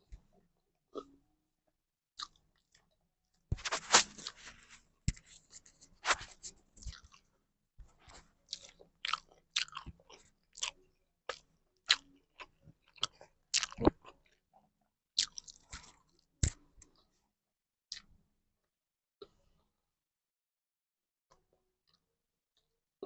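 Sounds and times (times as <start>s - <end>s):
chewing and mouth smacks: 6.8s - 7.2s, 8.1s - 14.4s, 15.2s - 17.0s.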